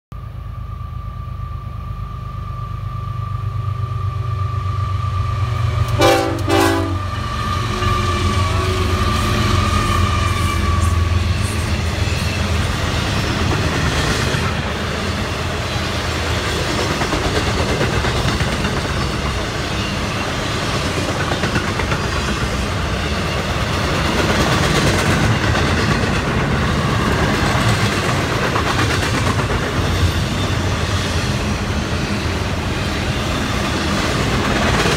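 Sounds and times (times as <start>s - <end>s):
diesel locomotive engine rumble: 0.1s - 34.9s
train horn blast: 5.8s - 11.3s
train cars clacking over rails: 5.8s - 34.9s.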